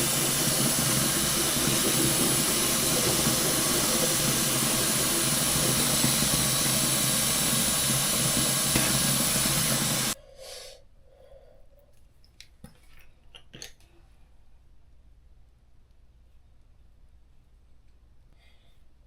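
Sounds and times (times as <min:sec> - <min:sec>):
loud hissing rush: 0:00.0 - 0:10.2.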